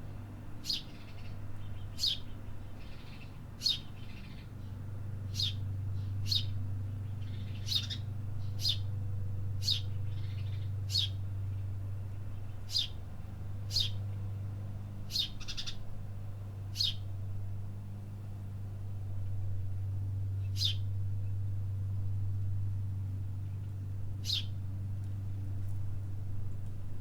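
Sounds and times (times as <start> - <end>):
steady low hum: 0.0 - 27.0
bird chirping: 0.6 - 4.4, 5.3 - 8.9, 9.6 - 11.7, 12.4 - 13.0, 13.7 - 14.0, 15.1 - 15.8, 16.7 - 17.0, 20.4 - 20.8, 24.2 - 24.5.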